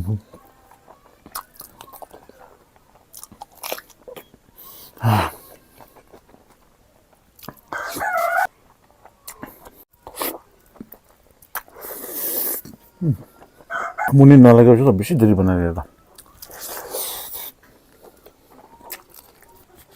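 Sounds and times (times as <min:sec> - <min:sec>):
biting and chewing food: 0:00.2 - 0:14.1, 0:16.0 - 0:19.9
small mouth clicks: 0:09.3 - 0:13.3.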